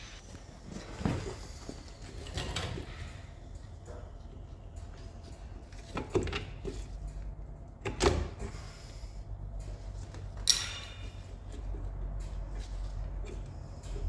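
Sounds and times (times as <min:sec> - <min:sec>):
sharp ringing knocks on metal: 0:10.4 - 0:11.3.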